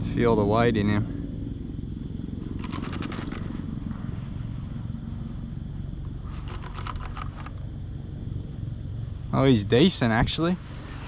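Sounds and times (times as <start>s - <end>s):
fishing reel ticking: 2.6s - 3.4s, 6.4s - 7.6s.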